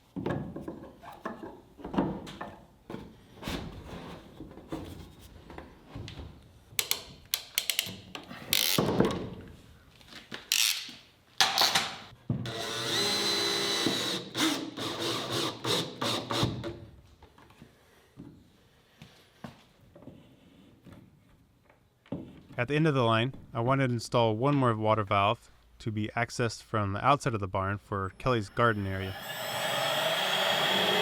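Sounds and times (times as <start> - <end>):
tool clicks and knocks: 6.8 - 8.9
power drill running: 12.5 - 16.4, 28.5 - 31.0.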